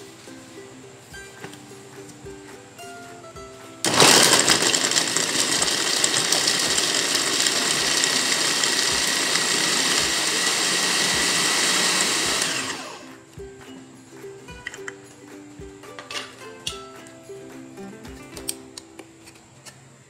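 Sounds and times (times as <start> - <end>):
food chopper motor running: 3.8 - 13.2.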